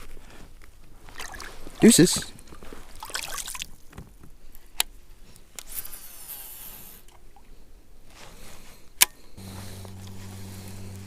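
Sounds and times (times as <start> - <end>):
rustling hiss: 8.1 - 11.0
steady low hum: 9.3 - 11.0.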